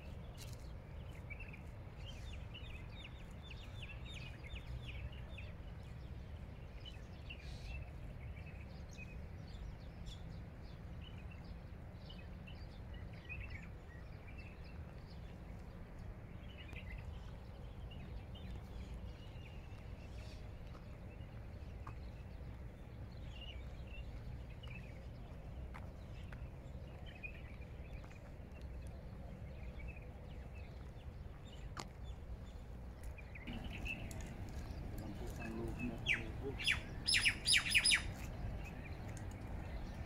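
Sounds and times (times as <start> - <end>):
small birds chirping: 16.4 - 40.0
low background rumble: 22.3 - 40.0.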